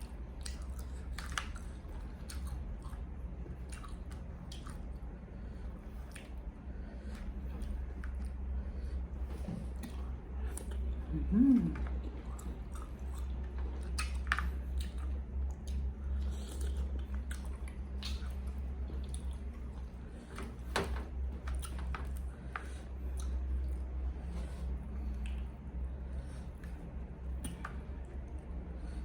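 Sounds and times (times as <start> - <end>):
person chewing with smacking: 0.0 - 20.6, 21.2 - 28.7
steady low hum: 0.0 - 29.0
person humming mm: 11.0 - 12.0.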